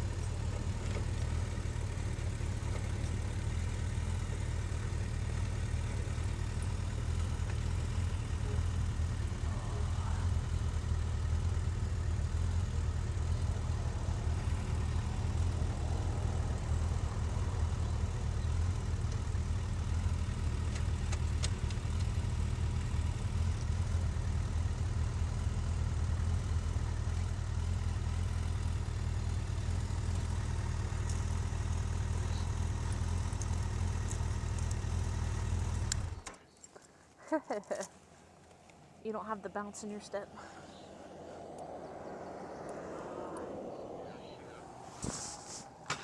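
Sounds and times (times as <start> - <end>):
motorcycle engine idling: 0.0 - 36.4.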